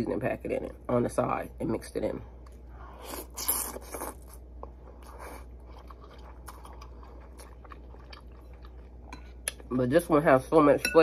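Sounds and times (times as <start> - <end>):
person chewing noodles: 2.4 - 9.6.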